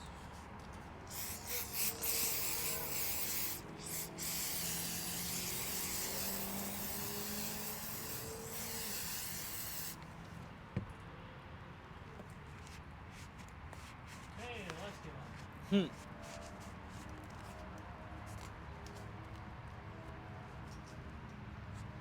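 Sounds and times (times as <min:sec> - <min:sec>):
pressurised spray hissing: 0:01.1 - 0:10.0.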